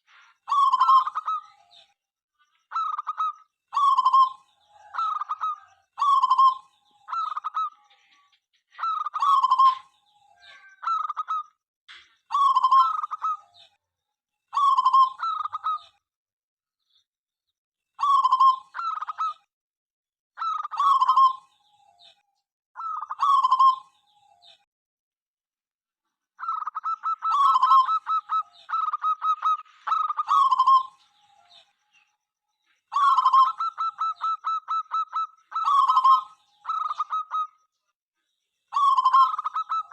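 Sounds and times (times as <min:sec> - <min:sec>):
doves cooing: 0:02.7 - 0:07.8, 0:08.8 - 0:09.9, 0:12.3 - 0:13.5, 0:18.0 - 0:19.4, 0:22.8 - 0:23.9, 0:26.4 - 0:31.0, 0:32.9 - 0:37.6, 0:38.7 - 0:39.9.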